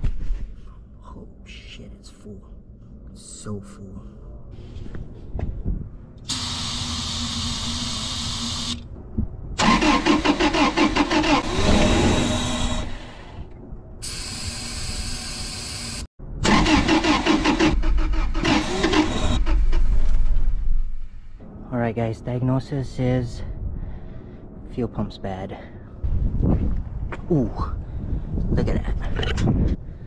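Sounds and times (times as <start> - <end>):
car engine cranking: 9.6 - 13.2, 16.4 - 20.7.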